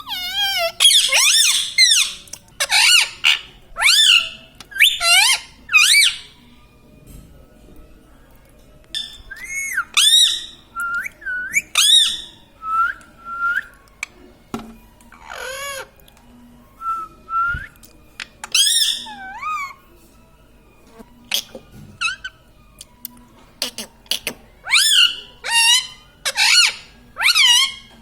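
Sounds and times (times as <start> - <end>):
parrot whistling and squawking: 0.0 - 6.3, 9.0 - 13.7, 15.2 - 15.9, 18.5 - 19.8, 21.3 - 22.4, 23.6 - 27.9.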